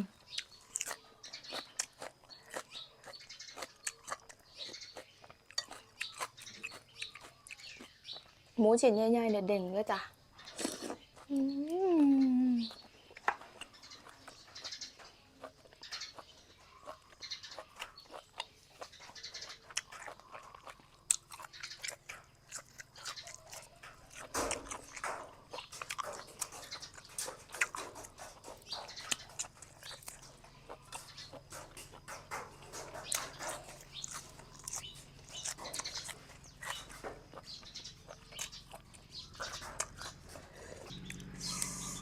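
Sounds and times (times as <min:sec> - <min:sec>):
wet chewing: 0:00.0 - 0:08.6, 0:10.3 - 0:42.0.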